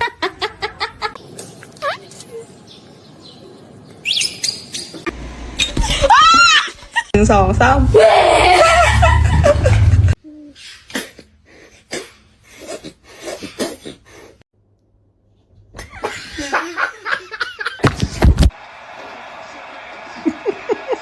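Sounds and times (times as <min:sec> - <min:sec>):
person laughing: 0:08.4 - 0:10.2.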